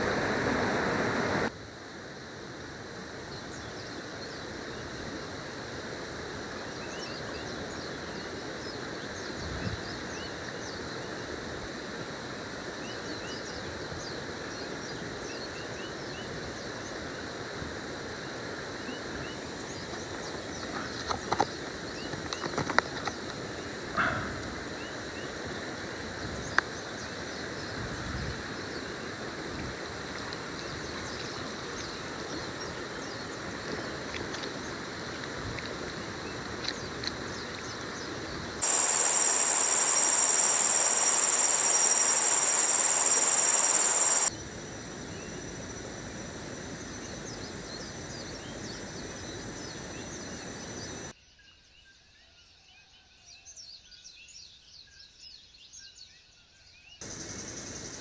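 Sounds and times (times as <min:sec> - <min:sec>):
jungle ambience: 0:00.0 - 0:53.0, 0:57.0 - 0:58.0
small chirps: 0:38.6 - 0:44.3
high-pitched insect drone: 0:38.6 - 0:51.1, 0:57.0 - 0:58.0.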